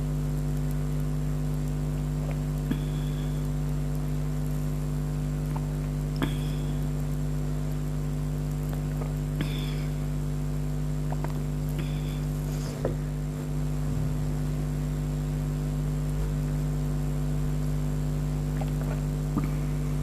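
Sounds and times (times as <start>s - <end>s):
electrical hum and hiss: 0.0s - 20.0s
person gulping a drink: 5.4s - 7.1s, 8.5s - 10.1s, 11.0s - 13.0s, 18.4s - 20.0s.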